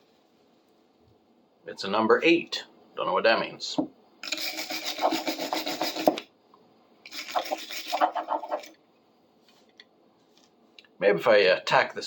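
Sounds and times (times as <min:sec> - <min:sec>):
stiff brush scrubbing metal: 0:04.2 - 0:06.2, 0:07.1 - 0:08.7.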